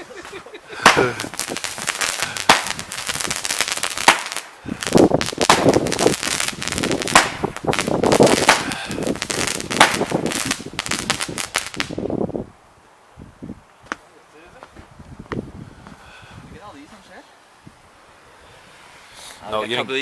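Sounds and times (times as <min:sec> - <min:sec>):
fireworks bangs and crackles: 0:00.0 - 0:12.1.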